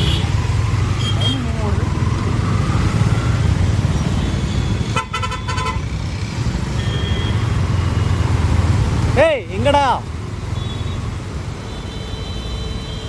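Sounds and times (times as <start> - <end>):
vehicle horn honking: 0.0 - 0.4, 4.2 - 5.9, 6.8 - 7.6
road traffic rumble: 0.0 - 13.0.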